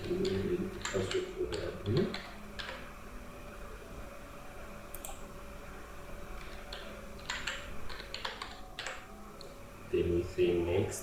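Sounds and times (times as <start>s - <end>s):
faint steady hum: 0.0s - 11.0s
keyboard keystrokes: 6.4s - 9.0s.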